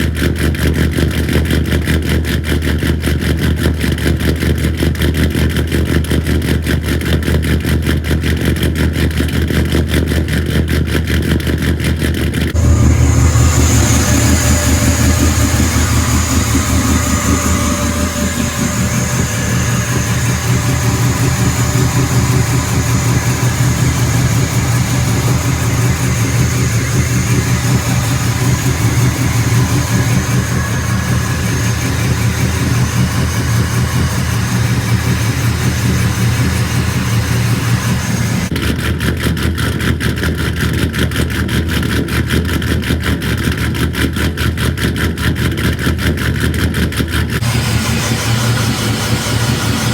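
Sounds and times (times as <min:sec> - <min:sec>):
pickup truck engine idling: 0:12.6 - 0:38.5, 0:47.4 - 0:49.9
rapid even pulsing: 0:12.6 - 0:38.5, 0:47.4 - 0:49.9.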